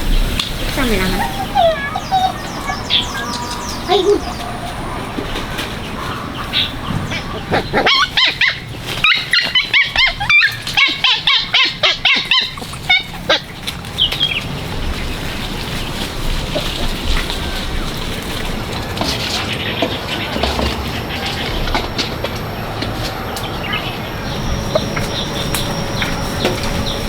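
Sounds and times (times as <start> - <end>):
animal yelping: 0.5 - 15.4, 23.0 - 27.0.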